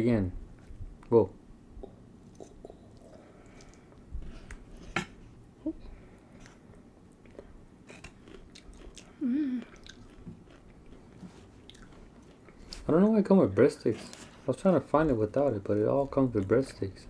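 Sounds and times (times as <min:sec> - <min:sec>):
chewing and crunching food: 0:06.1 - 0:12.9
person humming: 0:09.2 - 0:09.8.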